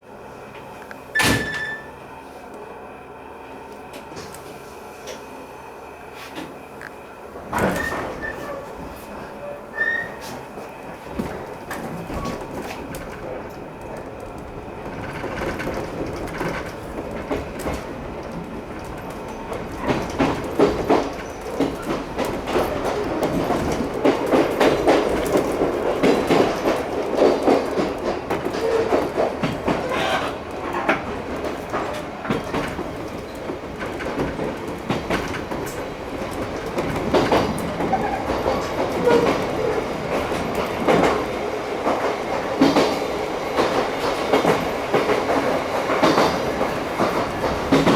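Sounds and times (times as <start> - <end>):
wheels clattering over rail joints: 11.1 - 47.9.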